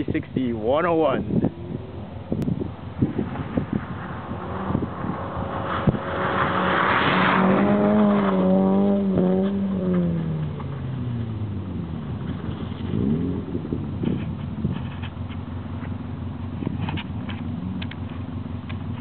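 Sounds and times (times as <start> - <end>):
tyres spinning on snow: 0.7 - 19.0
car engine revving hard: 1.3 - 14.1.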